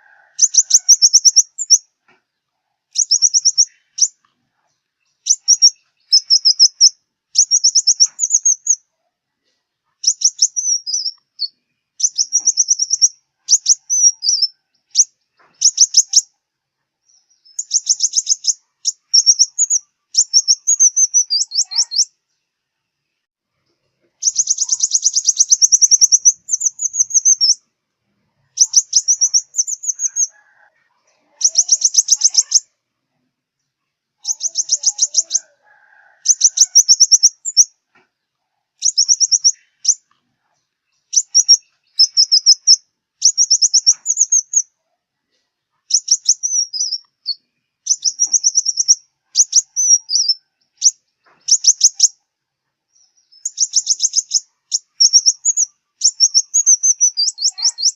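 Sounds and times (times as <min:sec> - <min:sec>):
sunbird chirping trills: 0:00.4 - 0:01.9, 0:02.9 - 0:04.2, 0:05.0 - 0:08.9, 0:09.9 - 0:16.4, 0:17.0 - 0:22.5, 0:24.2 - 0:27.7, 0:28.4 - 0:30.5, 0:31.2 - 0:32.8, 0:34.2 - 0:37.8, 0:38.8 - 0:40.1, 0:40.8 - 0:44.8, 0:45.8 - 0:52.2, 0:52.9 - 0:57.9.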